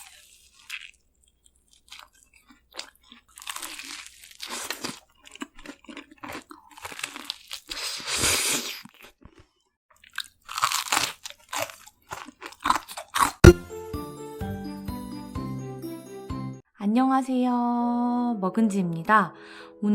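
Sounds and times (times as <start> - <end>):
crunching chewing of fried chicken: 0.0 - 13.5
music: 13.4 - 16.6, 18.0 - 19.9.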